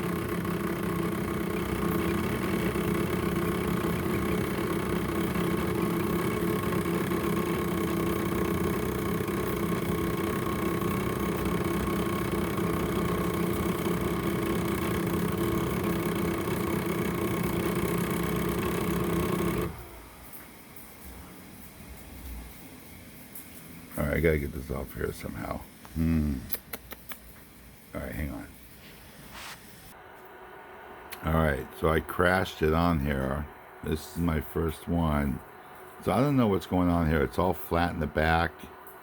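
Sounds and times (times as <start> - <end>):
printer machine hum: 0.0 - 20.9.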